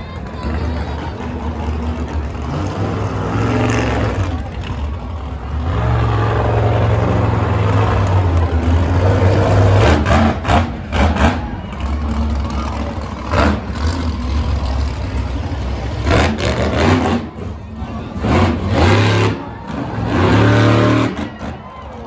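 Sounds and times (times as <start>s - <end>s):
monster truck engine running: 0.0s - 22.0s.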